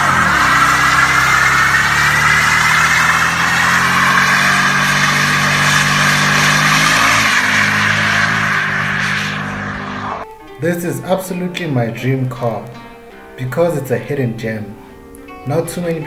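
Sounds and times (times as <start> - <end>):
car engine at high revs: 0.0 - 10.2
tyres squealing: 0.0 - 10.2.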